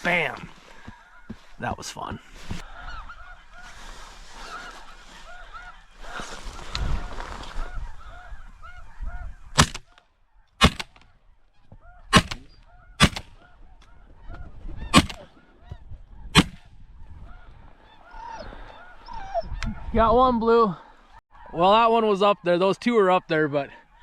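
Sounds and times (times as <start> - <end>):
geese honking: 0.0 - 24.0
loud shotgun shots: 9.6 - 9.9, 10.6 - 11.0, 12.1 - 13.4, 14.9 - 15.3, 16.4 - 16.7.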